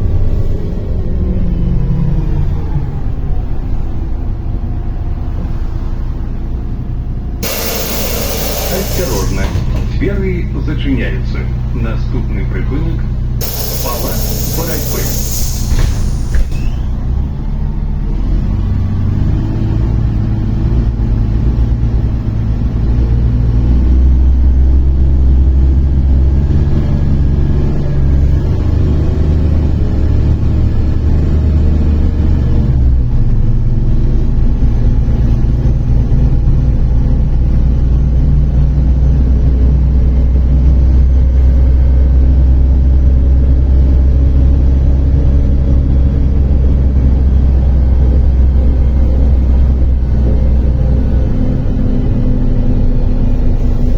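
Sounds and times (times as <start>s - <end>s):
bus diesel engine humming: 0.0s - 53.9s
pneumatic hiss: 7.4s - 9.9s, 13.4s - 17.0s.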